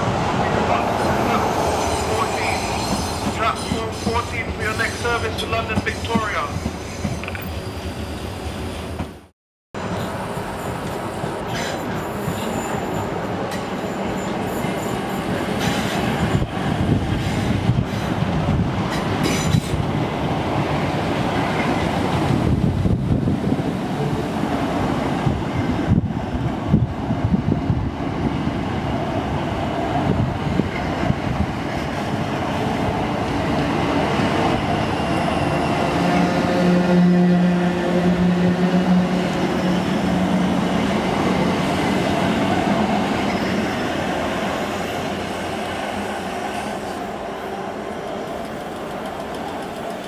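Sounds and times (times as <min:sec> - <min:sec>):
rumble of wheels on rail: 0:00.0 - 0:50.0
high flange squeal: 0:00.4 - 0:04.4, 0:34.6 - 0:37.3.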